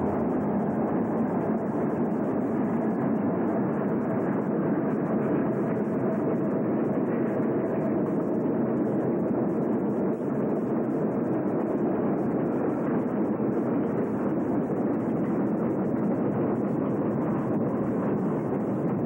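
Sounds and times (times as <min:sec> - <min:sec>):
freight train passing: 0:00.0 - 0:01.8.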